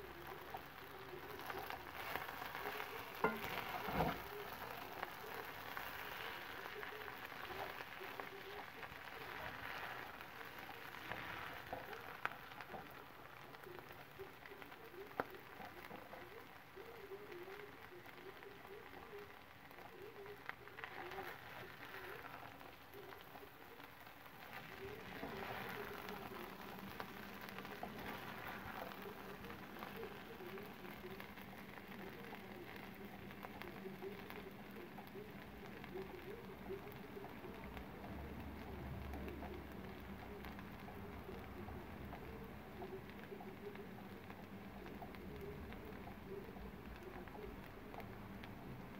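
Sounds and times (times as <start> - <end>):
spatula stirring and scooping: 0.0 - 38.0
rice sizzling in a skillet: 0.0 - 48.9
spatula tapping against pan: 3.2 - 4.1.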